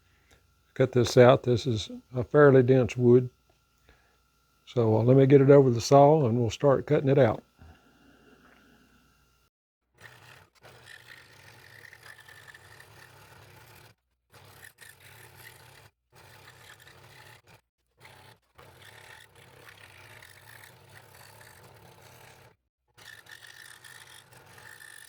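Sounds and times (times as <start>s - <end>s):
scroll saw humming: 0.1s - 4.1s, 4.7s - 9.4s, 23.0s - 25.0s
saw blade rasping through wood: 23.0s - 25.0s.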